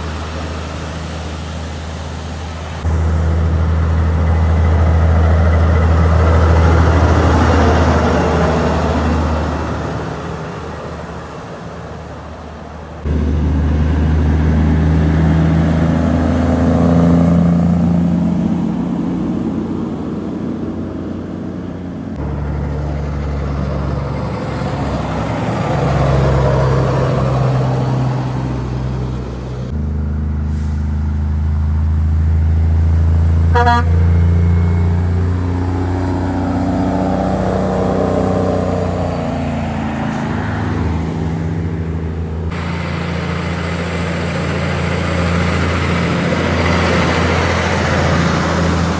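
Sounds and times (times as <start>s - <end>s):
heavy truck engines passing: 0.0s - 48.9s
truck horn toot: 33.4s - 35.4s.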